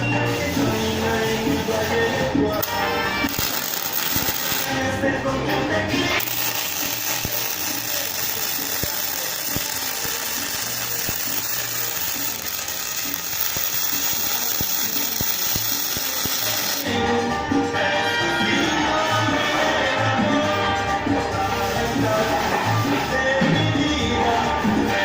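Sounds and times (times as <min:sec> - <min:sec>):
welding arc hissing and clicking: 0:02.6 - 0:04.8, 0:06.2 - 0:16.9.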